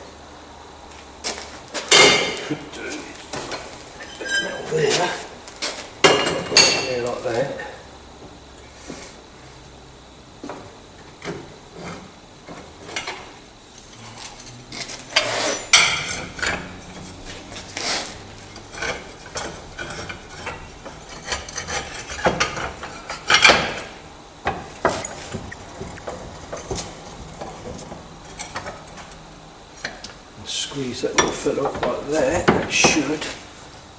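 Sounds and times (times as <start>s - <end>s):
metal tools clinking and knocking: 4.0s - 4.8s, 15.1s - 16.8s.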